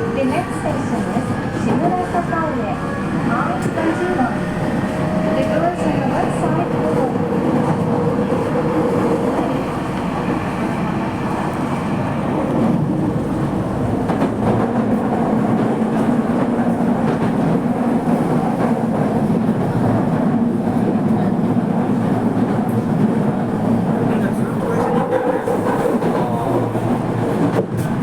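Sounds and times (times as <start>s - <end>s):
subway wheels rumbling on rails: 0.0s - 28.0s.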